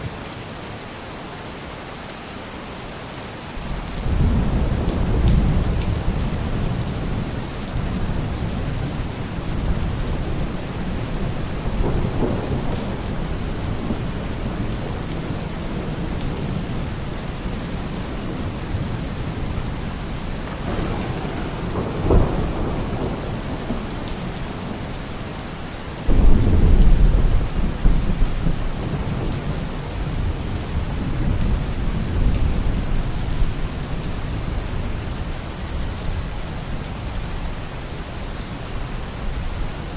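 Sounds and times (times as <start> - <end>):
steady rain: 0.0 - 39.9
thunder rumbling: 3.6 - 25.4, 26.0 - 36.2
loud thunder clap: 26.1 - 29.4.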